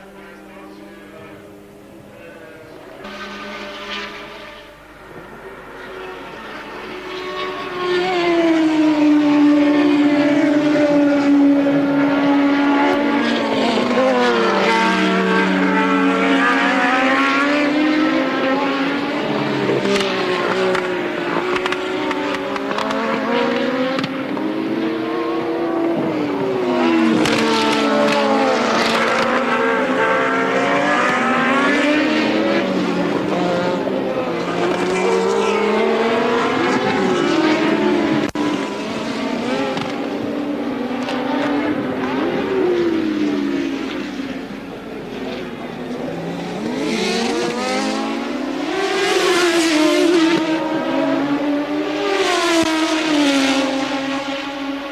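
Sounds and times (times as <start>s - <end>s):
race car engines at speed: 0.0s - 54.9s.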